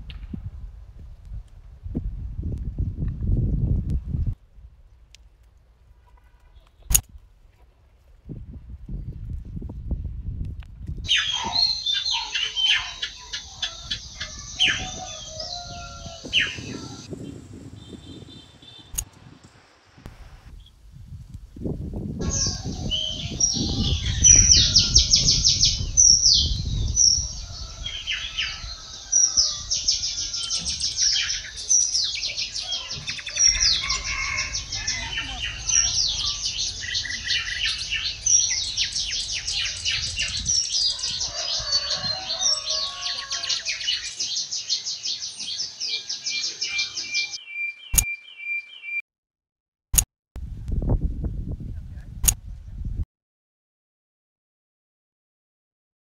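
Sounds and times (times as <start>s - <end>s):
small birds chirping and trilling: 11.0s - 19.0s, 22.2s - 49.0s.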